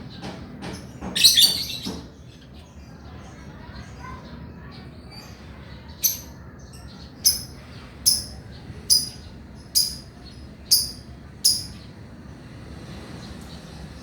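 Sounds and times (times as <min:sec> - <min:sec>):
lovebird shrill calls: 0:07.2 - 0:09.2, 0:09.8 - 0:10.1, 0:10.7 - 0:11.8.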